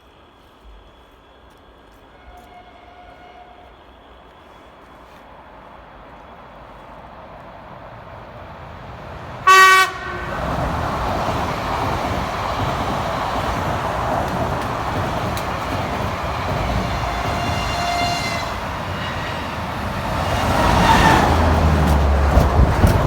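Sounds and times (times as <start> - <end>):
train rolling past: 0.1 - 23.0
train horn blast: 2.0 - 3.8, 9.4 - 10.5, 16.6 - 21.6.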